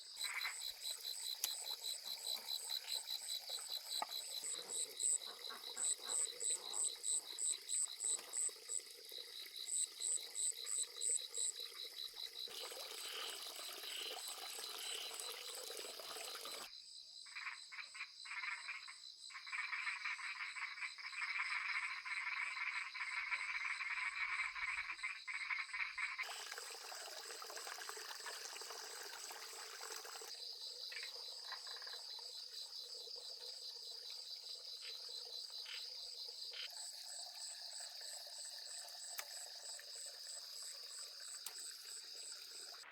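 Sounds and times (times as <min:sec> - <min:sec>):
frogs calling: 0:00.0 - 0:08.9, 0:17.3 - 0:26.4, 0:30.0 - 0:37.2
insects trilling: 0:00.0 - 0:16.7, 0:18.2 - 0:42.9.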